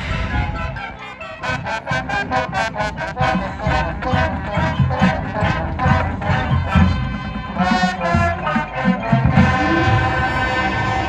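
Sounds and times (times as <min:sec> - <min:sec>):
brass band playing: 0:00.0 - 0:11.0
marching drum beat: 0:02.6 - 0:10.8.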